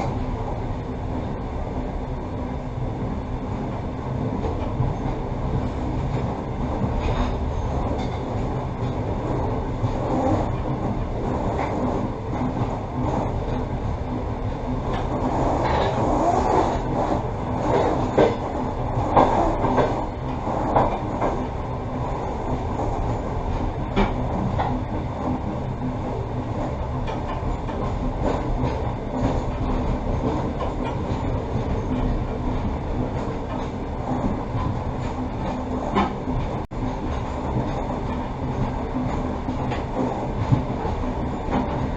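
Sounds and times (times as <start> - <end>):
train wheels rumbling on rails: 0.0 - 41.9
train knocks: 6.0 - 13.7, 14.8 - 26.0.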